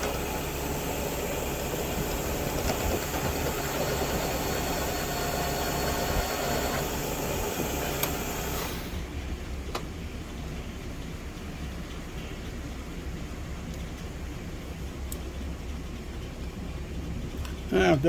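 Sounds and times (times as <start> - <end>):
milling machine low hum: 0.0 - 9.3.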